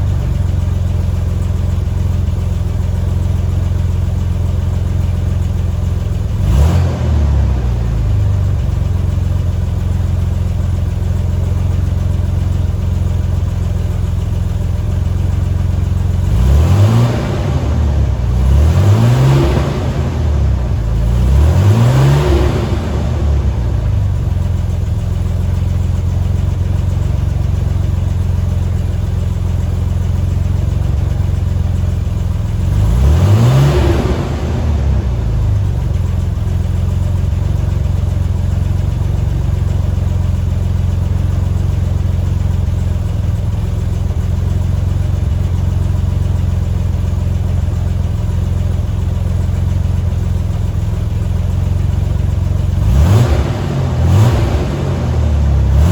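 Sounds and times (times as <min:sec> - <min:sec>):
truck engine idling and revving: 0:00.0 - 0:55.9.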